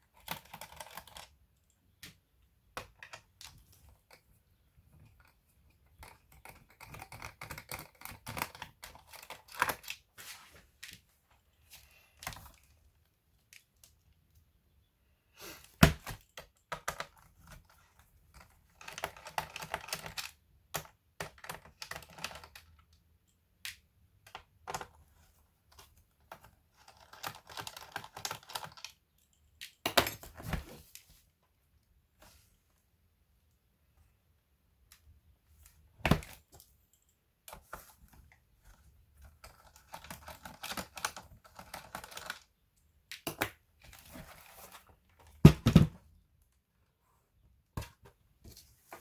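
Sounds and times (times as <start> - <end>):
laptop parts clicking and rattling: 0.0 - 10.1, 15.8 - 31.0, 36.1 - 46.0.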